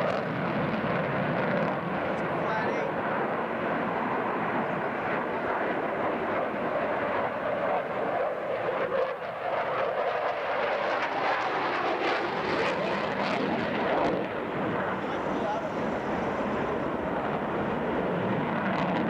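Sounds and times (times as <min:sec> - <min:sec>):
airplane engine roar: 0:00.0 - 0:19.0.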